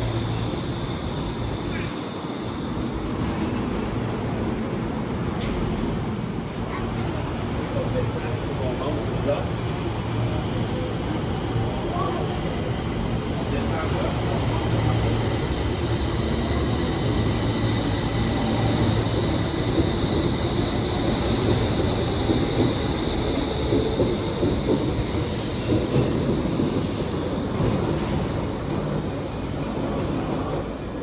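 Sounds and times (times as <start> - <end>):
high squeal of wheels: 0.0 - 4.0
train rumbling on rails: 0.0 - 31.0.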